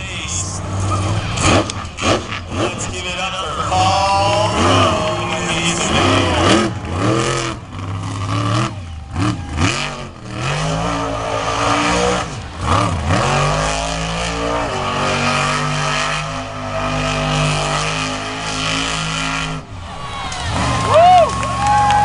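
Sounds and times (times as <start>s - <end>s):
monster truck engine revving: 0.0s - 22.0s.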